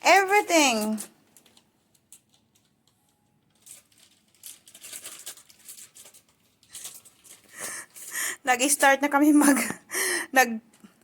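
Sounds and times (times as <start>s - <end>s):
packaging rustling and crinkling: 0.6s - 8.3s.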